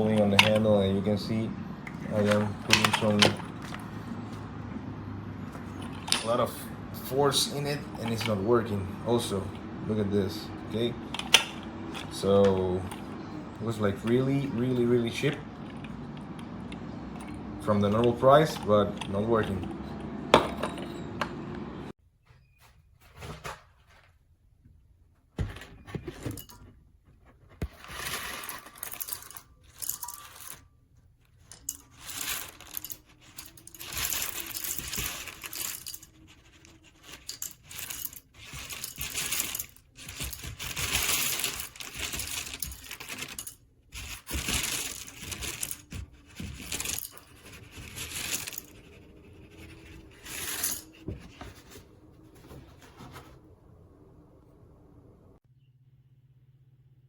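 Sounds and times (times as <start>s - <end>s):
coffee grinder scraping and rubbing: 5.4s - 20.3s, 27.6s - 30.6s, 31.7s - 53.4s.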